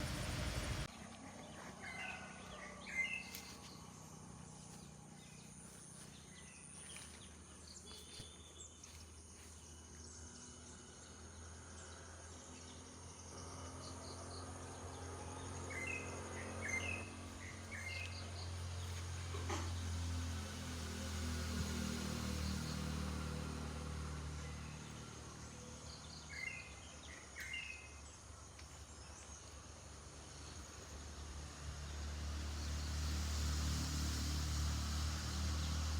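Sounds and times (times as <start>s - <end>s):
low hum: 0.0s - 1.9s.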